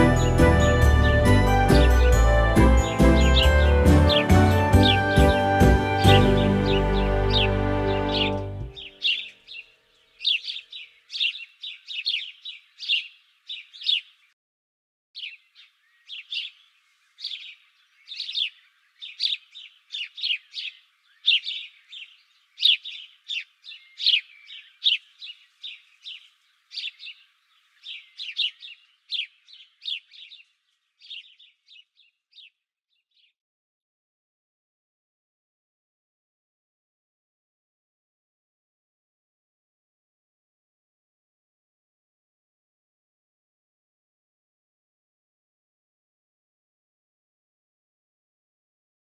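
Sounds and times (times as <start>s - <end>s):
songbirds chirping: 0.0s - 14.4s, 15.2s - 33.4s.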